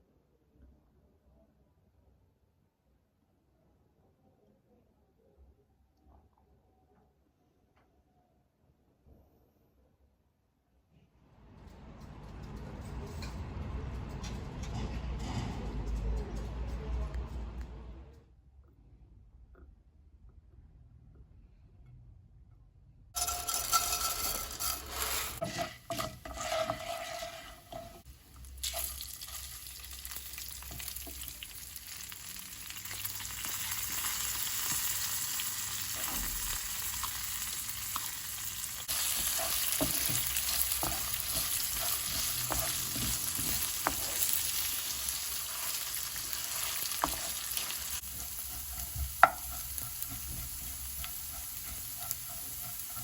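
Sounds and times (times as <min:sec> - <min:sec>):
utensil scraping pan: 0:23.2 - 0:29.0, 0:38.8 - 0:53.0
food sizzling in frying pan: 0:23.2 - 0:53.0.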